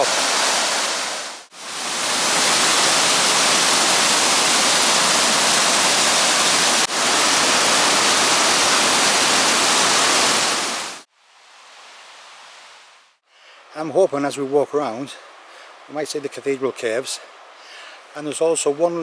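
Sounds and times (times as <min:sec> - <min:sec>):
waterfall rushing: 0:00.0 - 0:11.1
faint hiss: 0:00.0 - 0:19.0.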